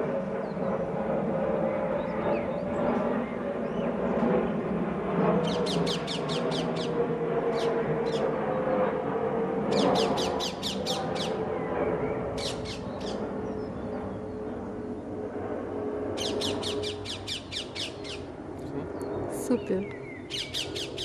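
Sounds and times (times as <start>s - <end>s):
steady low hum: 0.0s - 21.0s
bird squawking shrilly: 5.5s - 8.2s, 9.7s - 11.4s, 12.4s - 13.2s, 16.2s - 18.3s, 20.2s - 21.0s.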